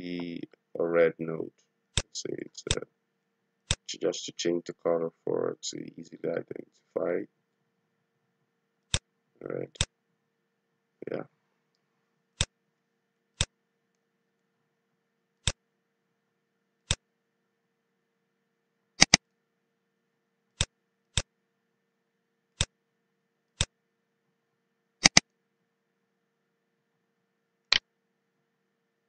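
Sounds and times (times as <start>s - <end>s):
computer mouse clicking: 3.7s - 3.9s, 19.0s - 19.2s, 25.0s - 25.3s.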